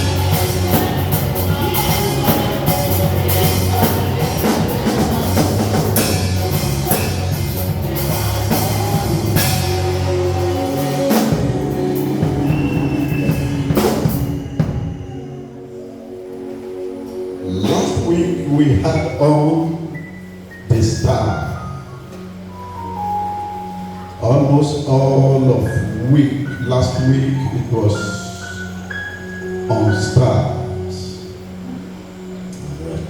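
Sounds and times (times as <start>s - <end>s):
drum kit: 0.0s - 15.4s
bass line: 0.0s - 16.1s
band music: 0.0s - 33.0s.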